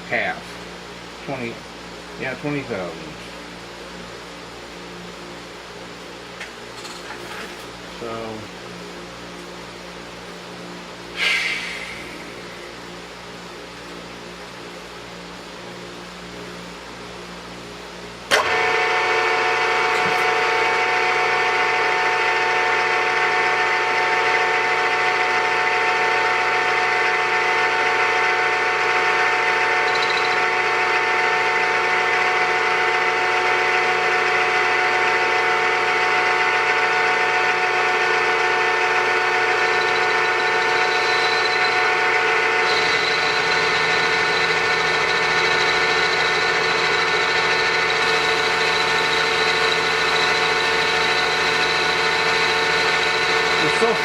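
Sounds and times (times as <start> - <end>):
milling machine motor whine: 0.0 - 54.0.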